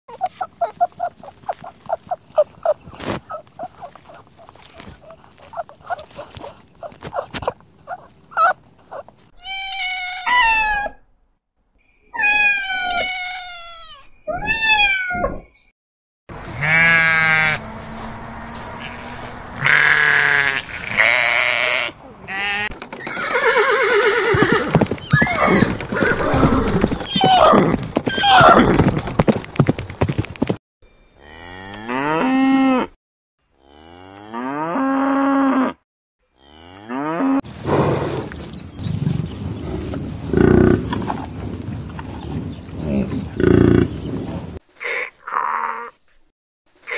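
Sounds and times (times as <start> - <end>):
sheep and goats bleating: 0.1 - 9.0, 16.4 - 22.7
bison grunting: 16.4 - 22.7
cow mooing: 16.4 - 22.7, 31.2 - 32.9, 36.4 - 37.4.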